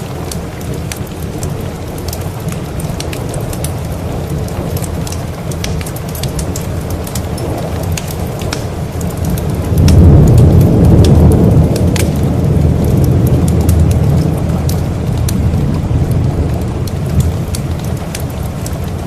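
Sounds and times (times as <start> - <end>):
steady rain: 0.0 - 19.0
thunder rumbling: 0.0 - 19.0
wood fire crackling: 0.0 - 19.0.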